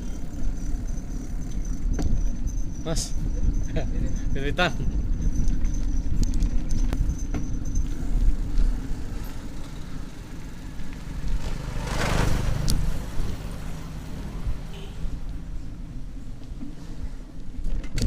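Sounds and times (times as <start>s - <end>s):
wind rumble on microphone: 0.2s - 9.5s
motor vehicle passing: 7.7s - 17.2s.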